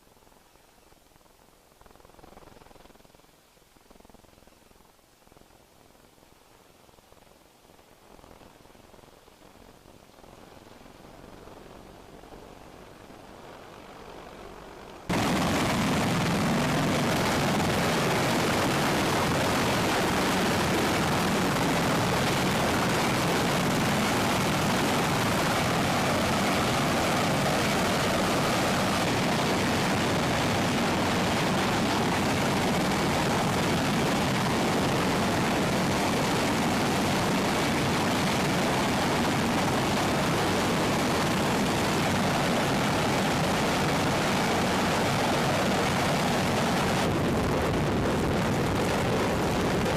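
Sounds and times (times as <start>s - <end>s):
helicopter engine and rotor: 15.1s - 49.9s.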